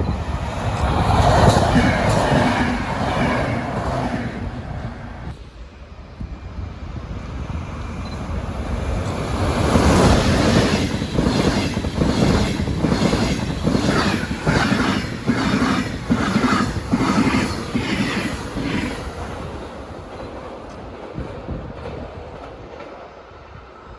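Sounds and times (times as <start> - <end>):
train passing: 0.0 - 23.9
train wheels clattering: 0.2 - 4.6, 9.1 - 23.3.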